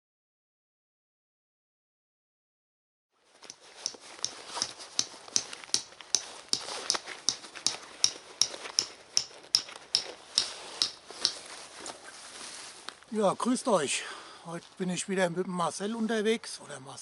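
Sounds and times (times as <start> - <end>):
rustling footsteps: 3.2 - 13.6.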